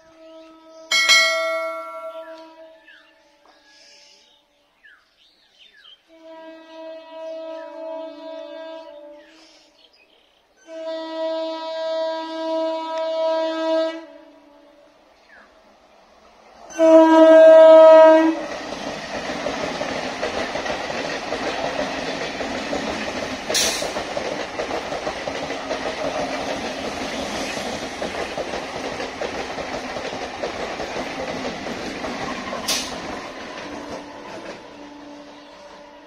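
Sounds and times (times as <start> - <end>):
train horn: 0.0 - 3.6, 6.0 - 9.8, 10.6 - 15.0, 16.7 - 18.6, 33.5 - 36.0
train wheels clattering over rails: 18.3 - 35.5.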